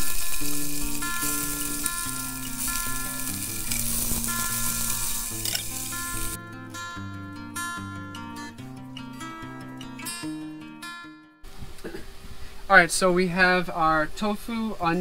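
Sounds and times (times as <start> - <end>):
onion sizzling in oil: 0.0 - 6.4.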